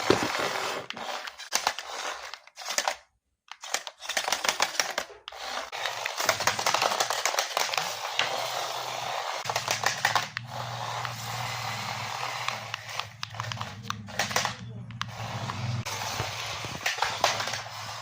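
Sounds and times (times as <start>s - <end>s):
plastic clicking and rattling: 0.0s - 8.3s, 9.4s - 11.2s, 12.4s - 18.0s
small electric motor humming: 10.4s - 13.7s.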